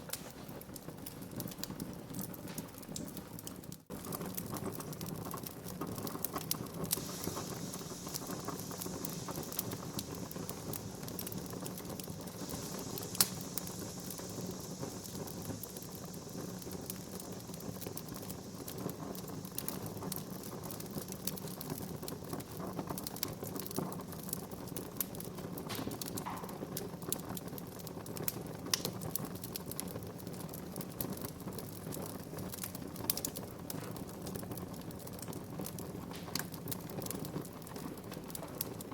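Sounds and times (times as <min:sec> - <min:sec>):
fire crackling and popping: 0:00.0 - 0:38.9
low rumble of flames: 0:00.0 - 0:38.9
soft hiss: 0:00.0 - 0:38.9.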